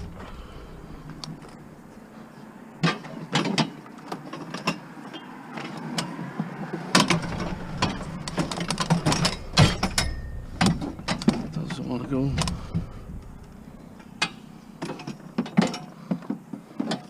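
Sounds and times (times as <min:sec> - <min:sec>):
low hum: 0:00.0 - 0:02.2, 0:07.1 - 0:15.9.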